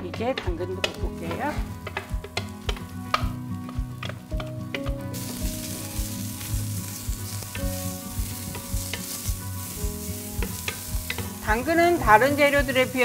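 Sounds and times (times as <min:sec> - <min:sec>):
wooden spatula knocking and scraping pan: 0:00.0 - 0:05.1, 0:10.3 - 0:12.6
carrots sizzling in frying pan: 0:00.0 - 0:13.0.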